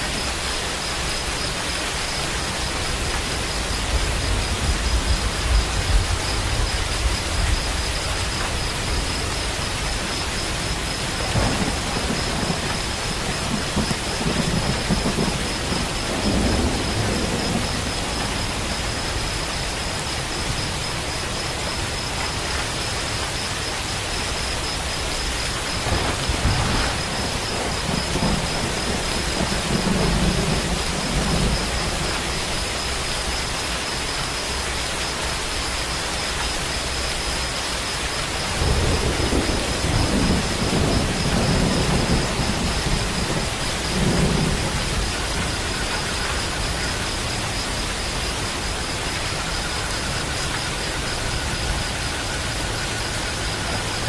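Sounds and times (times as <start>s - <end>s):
heavy rain: 0.0s - 54.0s
rolling thunder: 2.2s - 21.1s, 25.2s - 33.5s, 38.4s - 54.0s.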